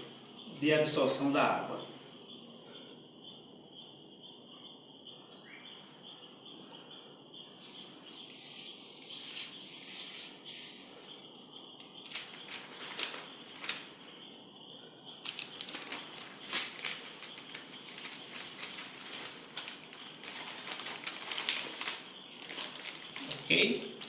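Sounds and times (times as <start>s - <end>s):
paper crinkling: 11.8s - 14.0s, 15.2s - 24.0s
water trickling onto paper: 11.8s - 14.0s, 15.2s - 24.0s.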